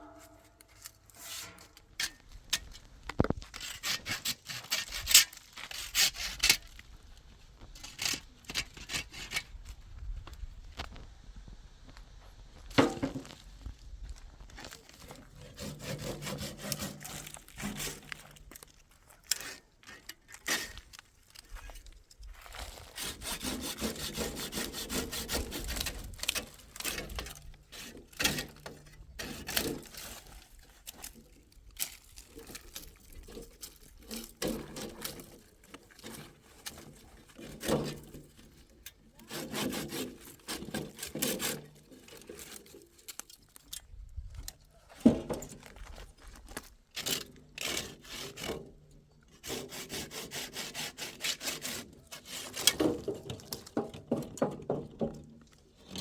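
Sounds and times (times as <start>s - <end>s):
rough scraping strokes: 0.0s - 2.2s, 3.4s - 6.7s, 15.0s - 20.9s, 22.4s - 43.3s, 49.3s - 53.8s.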